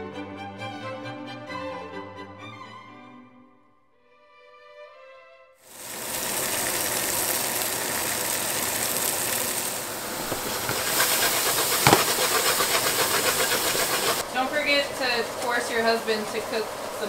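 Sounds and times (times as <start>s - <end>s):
violin music: 0.0s - 3.5s
vegetables sizzling in hot oil: 5.7s - 14.2s.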